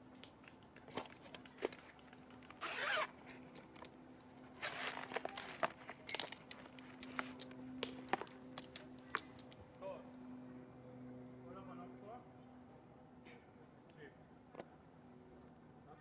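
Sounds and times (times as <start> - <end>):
handling clicks and knocks: 0.2 - 9.7
zipper being pulled: 1.7 - 3.5.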